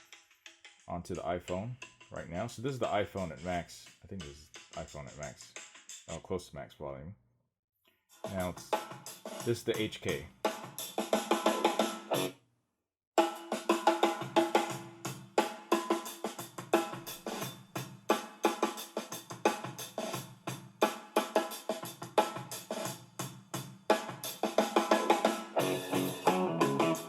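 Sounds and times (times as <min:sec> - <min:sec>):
drum-led music through speaker: 0:00.0 - 0:06.2, 0:08.2 - 0:12.3, 0:13.2 - 0:27.0.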